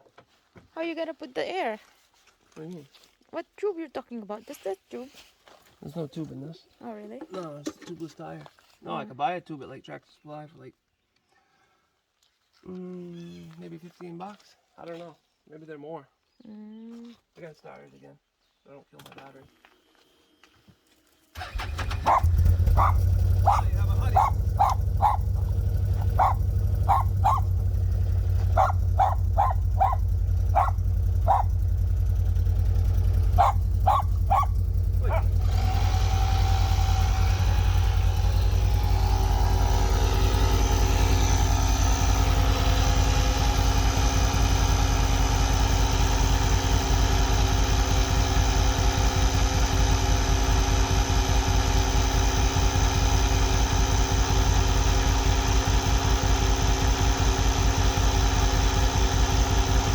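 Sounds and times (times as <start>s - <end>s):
air compressor whining: 21.4s - 59.9s
atv engine idling: 21.4s - 59.9s
dog barking: 21.8s - 27.6s, 28.5s - 31.6s, 33.2s - 35.4s.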